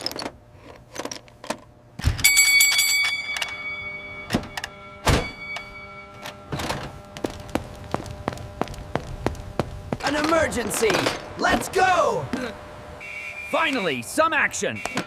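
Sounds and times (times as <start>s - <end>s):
alarm bell ringing: 2.2s - 8.0s.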